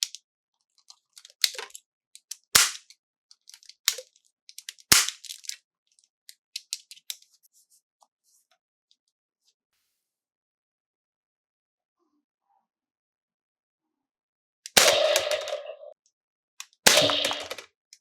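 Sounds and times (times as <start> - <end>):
packaging clicks and crackles: 0.8 - 7.2
loud sharp snaps: 2.6 - 2.8, 14.7 - 15.9, 16.9 - 17.7.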